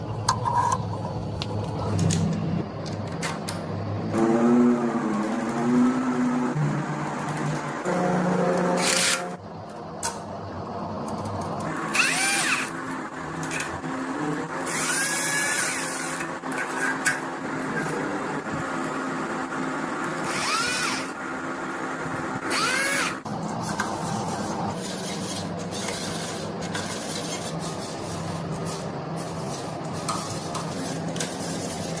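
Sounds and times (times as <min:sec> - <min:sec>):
power drill whining: 0:11.8 - 0:12.8, 0:14.6 - 0:16.2, 0:20.2 - 0:21.2, 0:22.5 - 0:23.2.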